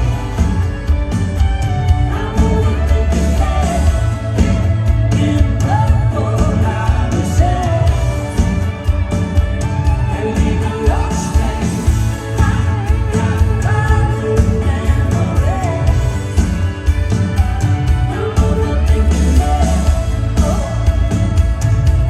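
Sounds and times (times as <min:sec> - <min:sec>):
live band playing: 0:00.0 - 0:22.0
person singing: 0:01.8 - 0:08.7, 0:09.7 - 0:16.7, 0:17.4 - 0:22.0.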